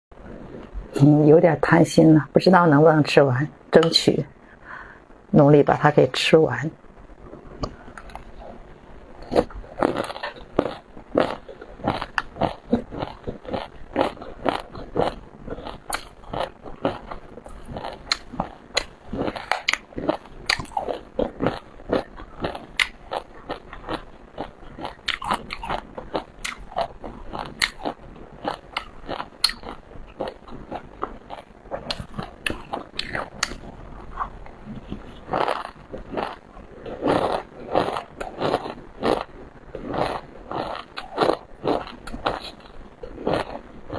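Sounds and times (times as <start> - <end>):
chewing with crisp crunches: 9.2 - 43.9.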